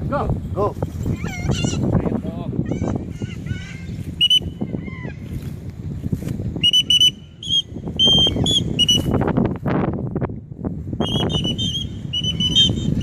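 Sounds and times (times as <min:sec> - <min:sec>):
whistle blasts: 0:04.2 - 0:04.6, 0:06.6 - 0:09.3, 0:11.0 - 0:13.0.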